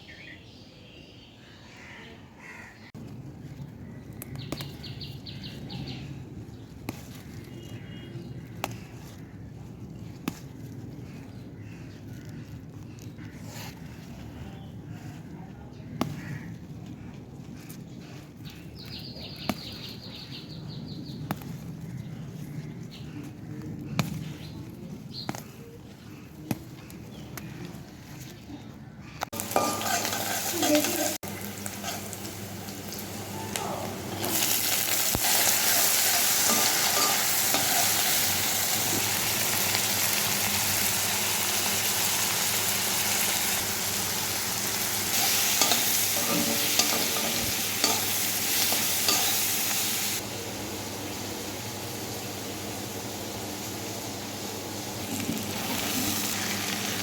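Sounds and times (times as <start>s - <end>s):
greens sizzling in oil: 29.3s - 57.0s.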